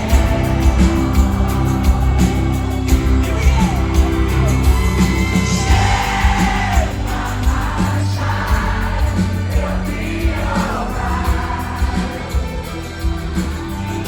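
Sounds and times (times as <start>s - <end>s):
lead singer singing: 0.0s - 13.6s
crowd singing along: 0.0s - 14.0s
live rock band: 0.0s - 14.0s.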